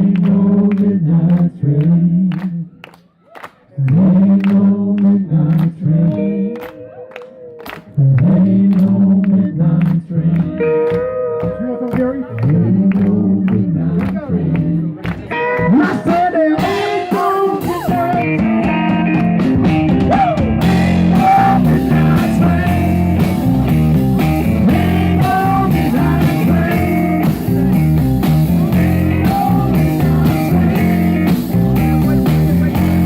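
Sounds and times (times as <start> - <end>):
bending electric guitar lines: 10.2 - 13.4, 15.3 - 33.0
blues band playing: 10.4 - 33.0.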